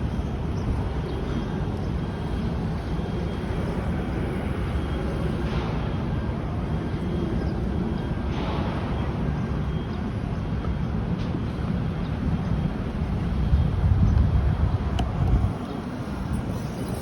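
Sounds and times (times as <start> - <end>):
traffic rumble: 0.0 - 17.0
wind on microphone: 12.9 - 17.0.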